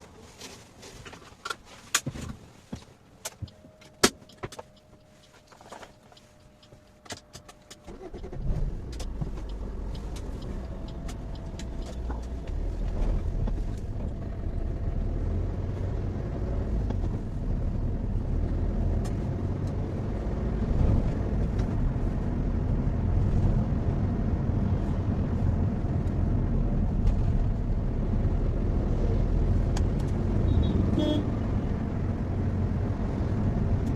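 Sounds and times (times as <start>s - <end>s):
road noise: 0.0s - 33.9s
car engine starting and running: 3.2s - 33.9s
sharp clicks and knocks: 8.5s - 14.2s.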